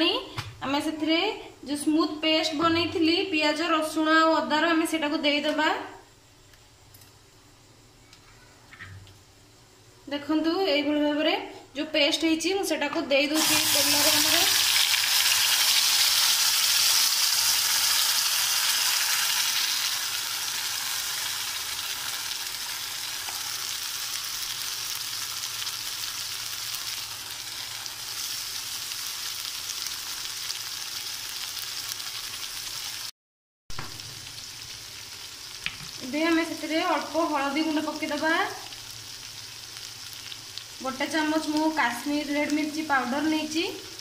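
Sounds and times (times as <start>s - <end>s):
paste sizzling in hot oil: 13.3s - 33.1s, 33.7s - 44.0s.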